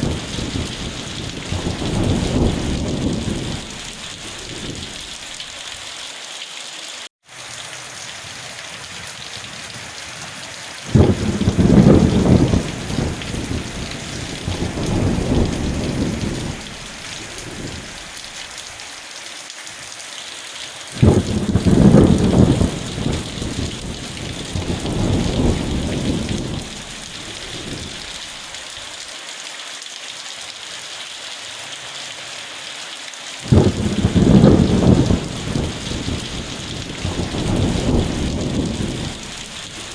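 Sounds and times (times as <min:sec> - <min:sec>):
thunder rumbling: 0:00.0 - 0:05.5, 0:08.5 - 0:18.3, 0:21.0 - 0:28.5, 0:33.4 - 0:39.9
steady rain hiss: 0:00.0 - 0:39.9.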